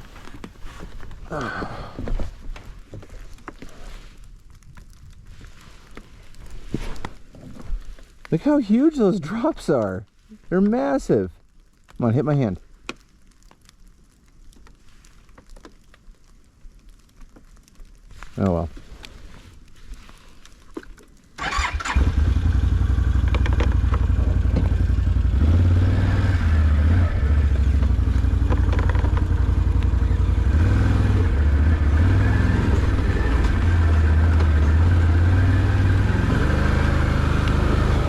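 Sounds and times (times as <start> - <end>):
engine starting and idling: 21.4 - 22.8.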